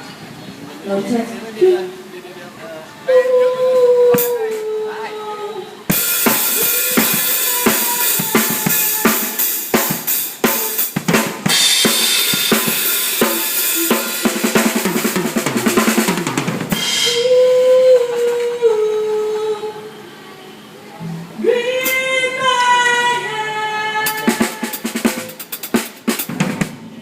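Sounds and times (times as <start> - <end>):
tom drum fill: 5.9 - 17.4
drum kit beat with cymbals: 5.9 - 18.5, 24.0 - 27.0.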